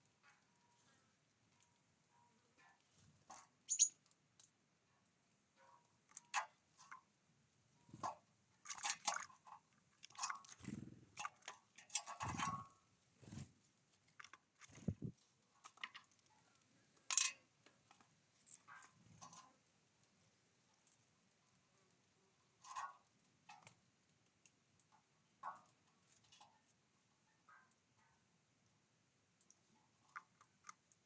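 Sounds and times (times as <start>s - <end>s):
birds pecking and cracking seeds: 2.5s - 4.6s, 7.9s - 26.8s, 29.4s - 31.0s.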